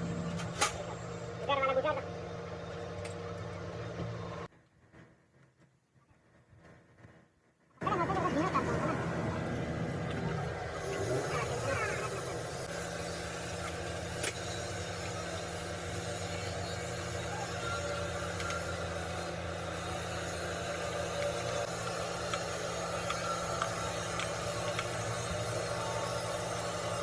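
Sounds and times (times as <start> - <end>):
diesel engine idling: 7.8 - 27.0.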